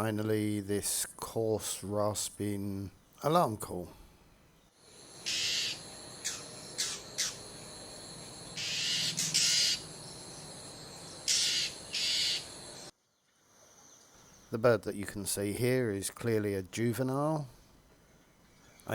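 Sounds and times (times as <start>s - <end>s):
bird rasping alarm call: 5.2s - 7.5s, 8.6s - 10.0s, 11.2s - 12.6s.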